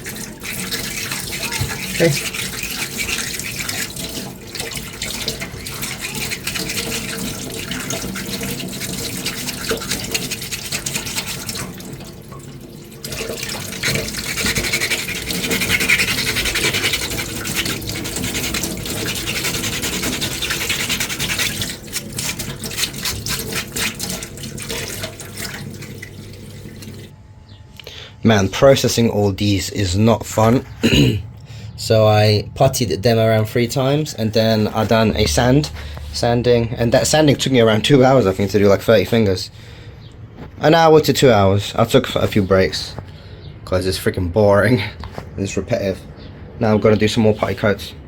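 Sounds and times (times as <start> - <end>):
scratchy sanding: 0.0 - 11.9, 13.1 - 25.2
steady low hum: 0.0 - 48.0.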